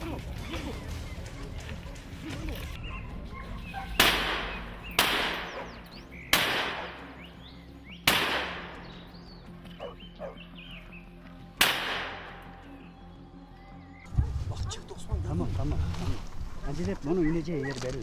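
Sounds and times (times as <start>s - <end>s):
rifle shots echoing: 4.0s - 7.1s, 8.1s - 8.8s, 11.6s - 12.5s.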